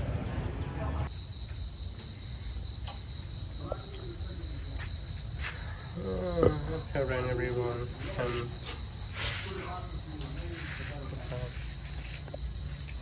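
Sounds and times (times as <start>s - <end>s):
cricket trilling: 1.0s - 13.0s.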